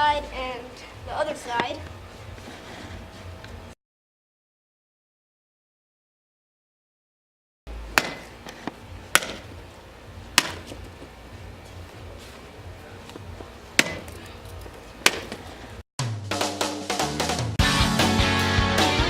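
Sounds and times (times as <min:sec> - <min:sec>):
music: 0:00.0 - 0:03.4, 0:16.0 - 0:19.0
metal bat whacking watermelon: 0:07.9 - 0:08.3, 0:09.1 - 0:09.5, 0:10.3 - 0:10.8, 0:13.8 - 0:14.2, 0:15.0 - 0:15.4.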